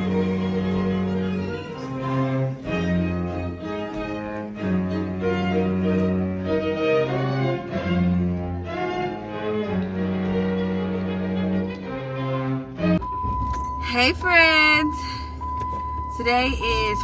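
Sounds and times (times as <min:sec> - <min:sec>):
violin and cello music: 0:00.0 - 0:13.0.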